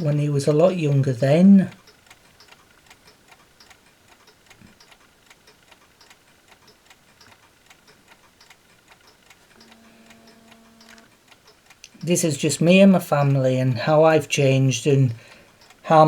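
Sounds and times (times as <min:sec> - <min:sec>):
low steady hum: 0:00.0 - 0:16.0
mechanical clocks ticking: 0:00.0 - 0:16.0.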